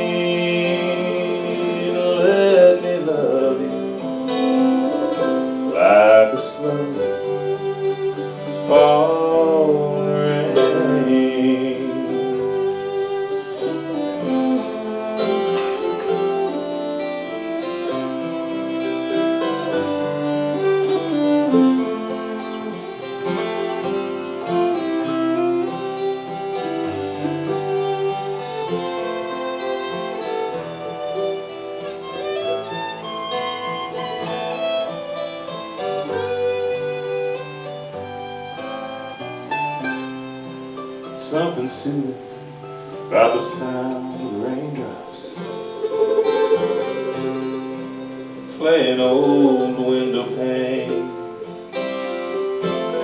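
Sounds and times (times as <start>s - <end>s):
slow country-folk instrumental: 0.0s - 53.0s.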